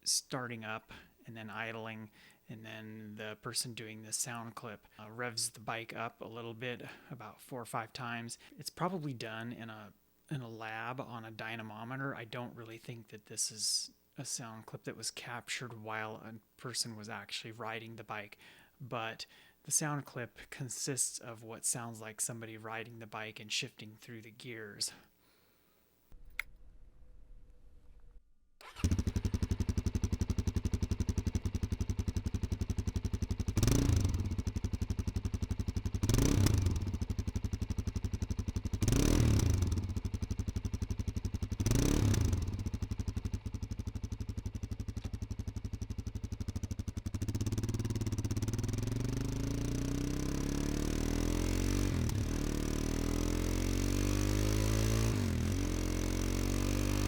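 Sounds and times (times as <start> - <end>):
motorcycle engine revving: 28.6 - 57.0.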